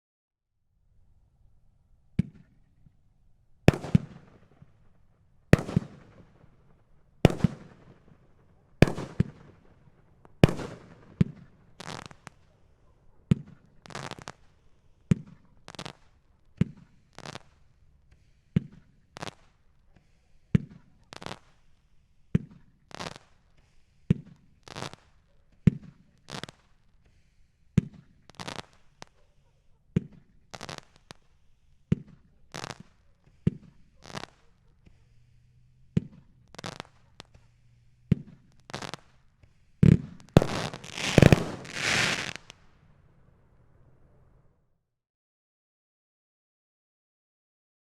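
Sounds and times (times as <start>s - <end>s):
fireworks bangs: 3.7s - 4.7s, 5.6s - 6.5s, 7.3s - 8.1s, 8.8s - 9.7s, 10.3s - 12.4s, 38.1s - 42.6s.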